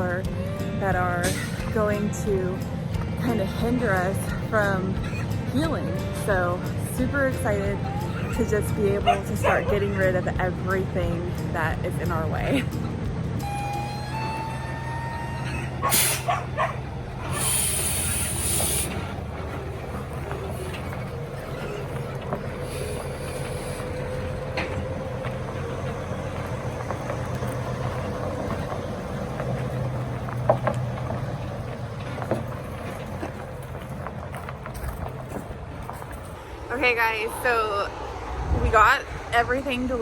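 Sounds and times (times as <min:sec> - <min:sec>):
truck engine idling: 0:00.0 - 0:40.0
air brakes hissing: 0:00.3 - 0:01.8, 0:13.4 - 0:34.0.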